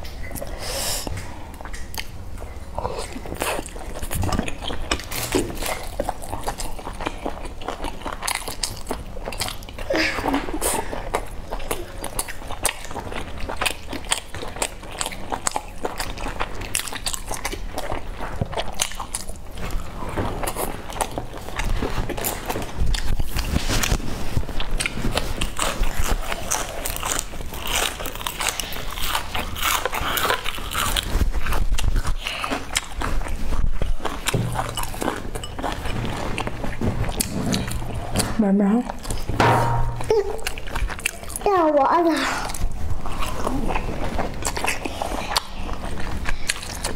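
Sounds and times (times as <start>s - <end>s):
wet chewing sounds: 0.0s - 46.9s.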